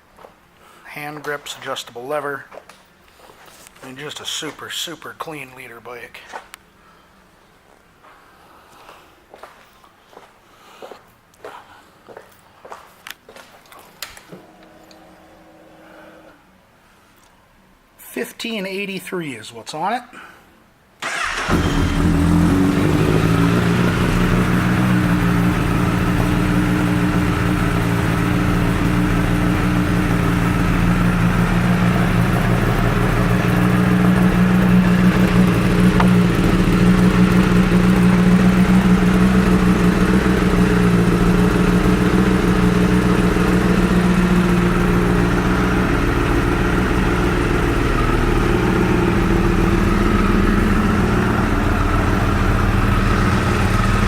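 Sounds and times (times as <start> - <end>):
motorcycle engine starting and idling: 21.0 - 54.0.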